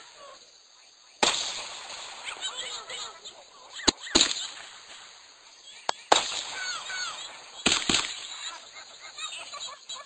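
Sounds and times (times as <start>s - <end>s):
fireworks bangs: 1.2s - 3.1s, 3.8s - 8.7s.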